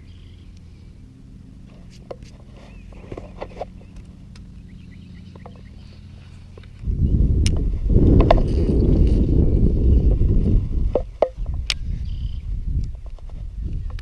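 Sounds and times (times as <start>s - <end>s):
steady low hum: 0.0s - 14.0s
faint bird chirps: 11.4s - 12.5s.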